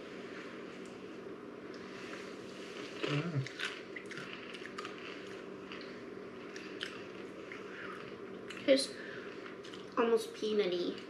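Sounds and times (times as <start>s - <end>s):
person crunching dry snack: 3.0s - 7.2s.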